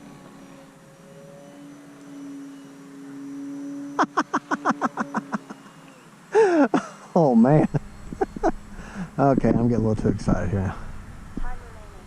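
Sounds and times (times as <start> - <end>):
model plane propeller droning: 0.0 - 12.0
man laughing: 4.0 - 9.2.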